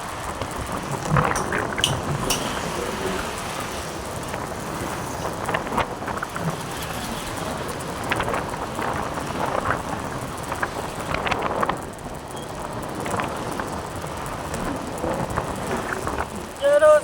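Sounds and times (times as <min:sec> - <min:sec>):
road noise: 0:00.0 - 0:16.8
wind rushing over microphone: 0:00.0 - 0:17.0
short clicks and rattles: 0:01.2 - 0:03.2.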